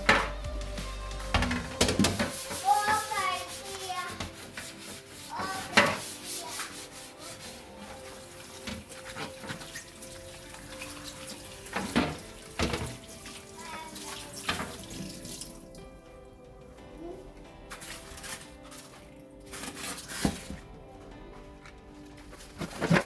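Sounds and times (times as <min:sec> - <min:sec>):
soft background music: 0:00.0 - 0:23.0
tap water running into sink: 0:07.4 - 0:16.0.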